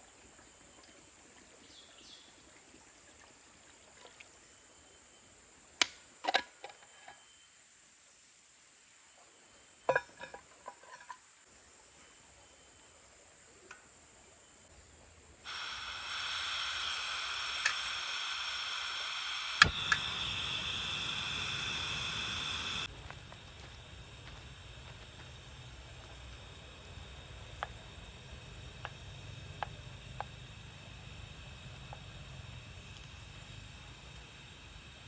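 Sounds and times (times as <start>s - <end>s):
igniter click: 15.5s - 22.9s
gas hissing: 15.5s - 35.0s
flame burning rumble: 19.5s - 35.0s.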